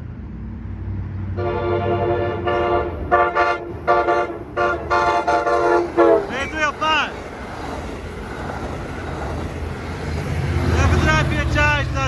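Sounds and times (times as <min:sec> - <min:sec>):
train rumble: 0:00.0 - 0:12.0
train horn chord blasts: 0:01.4 - 0:06.3.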